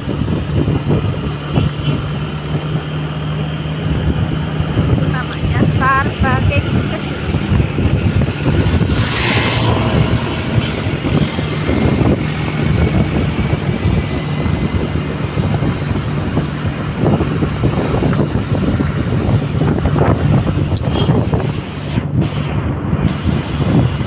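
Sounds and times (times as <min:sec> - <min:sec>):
vehicle engine hum on road: 0:00.0 - 0:24.0
wind rumbling on microphone: 0:00.0 - 0:24.0.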